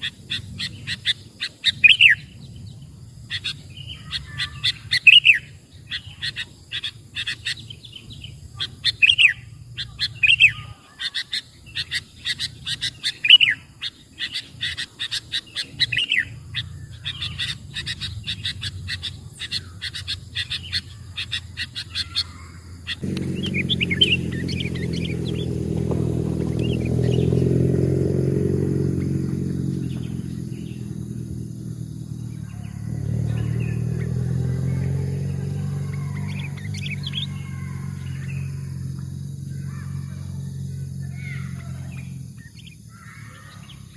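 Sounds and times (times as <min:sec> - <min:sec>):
birds chirping rapidly: 0:00.0 - 0:43.9
motor engine low hum: 0:14.3 - 0:43.9.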